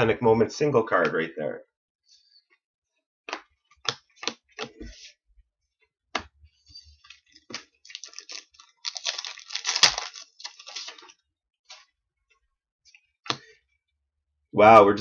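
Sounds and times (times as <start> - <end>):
card wrapper crinkling and rustling: 7.0 - 11.8.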